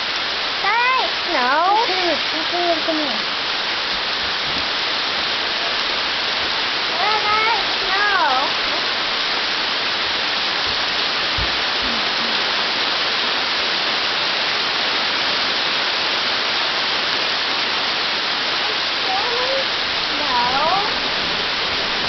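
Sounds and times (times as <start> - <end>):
hail and heavy rain: 0.0 - 22.0
low thump: 10.7 - 12.3.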